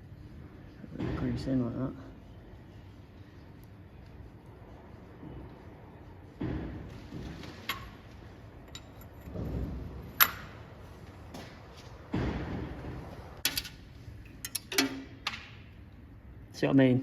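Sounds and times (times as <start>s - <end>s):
dull knocks of metal parts: 6.4s - 10.6s.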